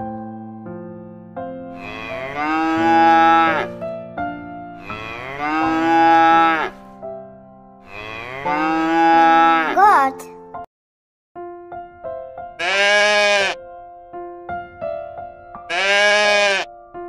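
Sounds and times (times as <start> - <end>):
cow mooing: 1.8 - 3.7, 4.8 - 6.8, 7.9 - 9.8, 12.6 - 13.6, 15.7 - 16.7.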